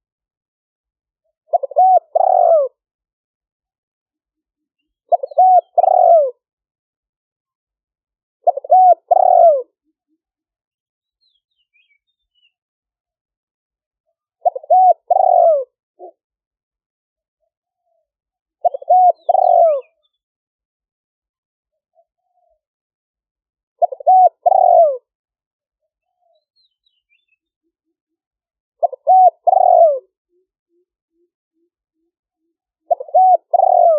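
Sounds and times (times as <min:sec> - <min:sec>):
dove cooing: 0:01.5 - 0:02.8, 0:05.1 - 0:06.4, 0:08.4 - 0:10.2, 0:14.4 - 0:16.2, 0:17.8 - 0:20.1, 0:21.9 - 0:22.6, 0:23.8 - 0:25.1, 0:28.8 - 0:33.9.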